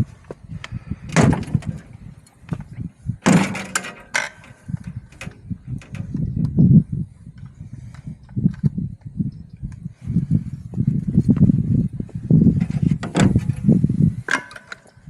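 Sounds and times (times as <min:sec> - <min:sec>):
metallic clanks on wire fence: 0:03.2 - 0:06.3.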